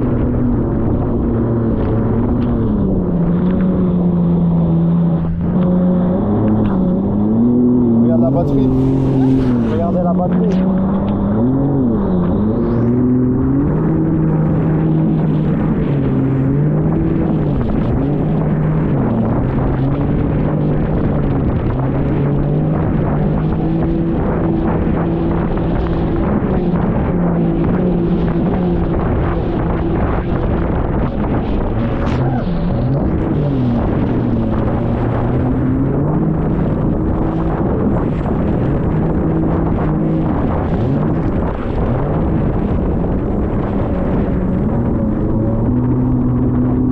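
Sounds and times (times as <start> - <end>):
constant rushing noise: 0.0 - 46.9
jet ski engine running: 0.0 - 46.9
loud rushing noise: 7.9 - 10.7.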